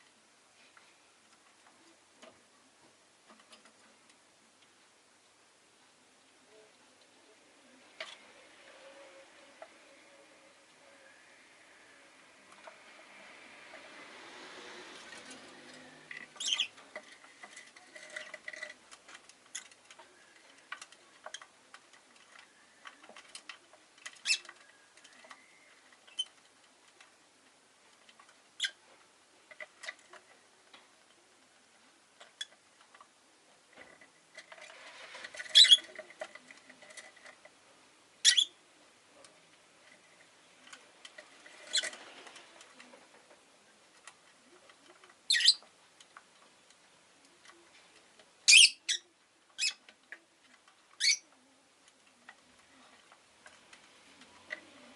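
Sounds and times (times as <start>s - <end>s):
bird chirping: 16.3s - 16.8s, 24.1s - 26.4s, 35.4s - 36.0s, 38.2s - 38.6s, 45.3s - 45.6s, 48.5s - 49.8s, 51.0s - 51.3s.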